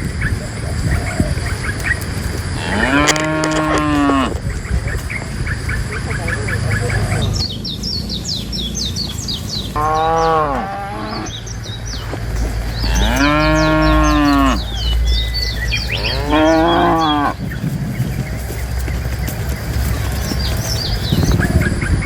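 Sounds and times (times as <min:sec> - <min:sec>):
birds chirping: 0:00.0 - 0:22.0
cattle mooing: 0:02.6 - 0:04.4, 0:09.8 - 0:11.5, 0:12.8 - 0:17.4.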